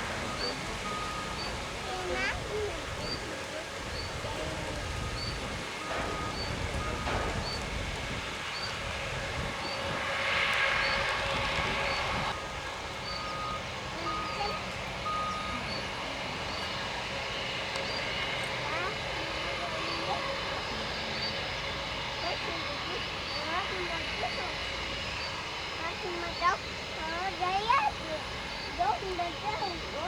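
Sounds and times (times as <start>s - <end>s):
wind rumble on microphone: 0.0s - 13.4s
reversing alarm beeping: 0.1s - 2.1s, 3.9s - 7.6s, 11.9s - 17.3s.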